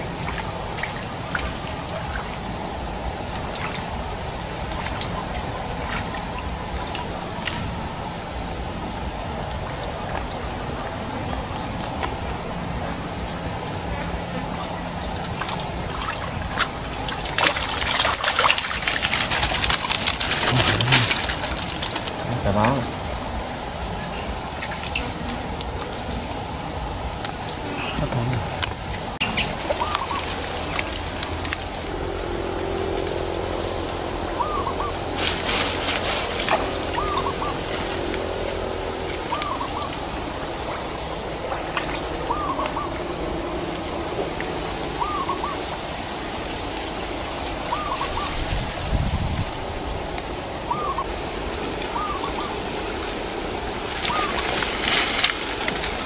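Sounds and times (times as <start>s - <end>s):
thin high whine: 0.0s - 56.0s
rustling crackle: 15.0s - 32.0s, 35.0s - 39.2s, 53.0s - 56.0s.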